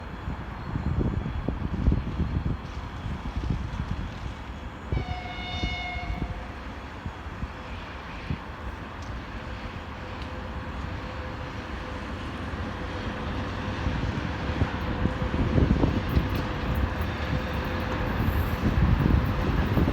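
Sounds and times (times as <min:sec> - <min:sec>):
freight train low rumble: 0:00.0 - 0:19.9.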